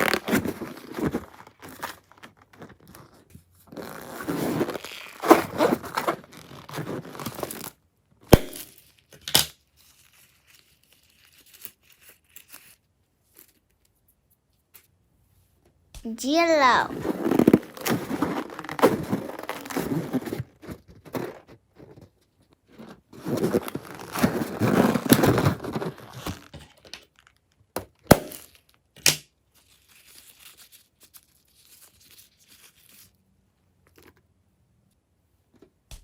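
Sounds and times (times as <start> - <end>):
crinkling and tearing materials: 17.1 - 21.5, 23.2 - 27.4.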